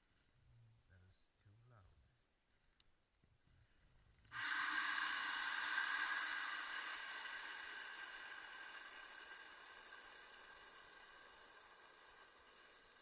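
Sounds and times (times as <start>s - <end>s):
hose water spraying into bucket: 4.3s - 13.0s.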